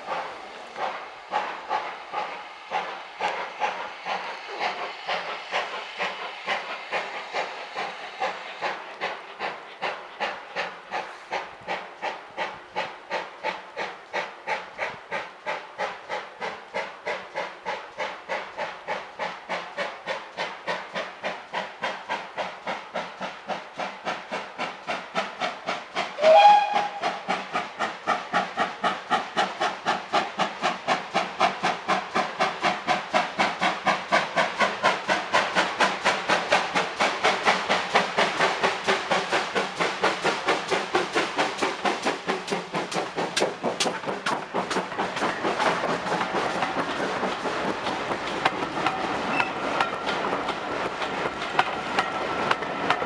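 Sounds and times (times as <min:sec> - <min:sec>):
steam locomotive chuffing: 0:00.0 - 0:53.0
train whistle blast: 0:26.2 - 0:27.0.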